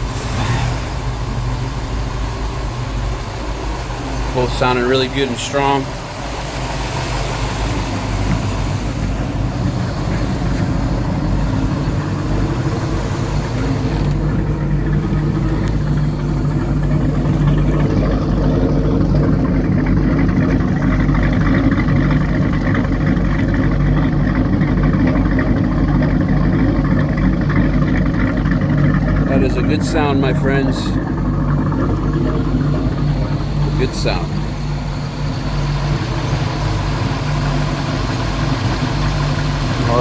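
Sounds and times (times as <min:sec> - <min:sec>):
twin boat engines running: 0:00.0 - 0:40.0.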